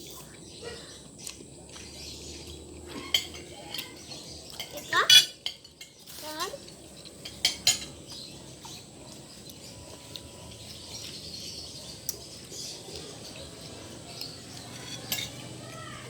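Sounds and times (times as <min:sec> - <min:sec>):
faint bird chirping: 0:00.0 - 0:16.0
utensil clinking against cookware: 0:03.0 - 0:06.2, 0:07.1 - 0:08.2, 0:14.2 - 0:16.0.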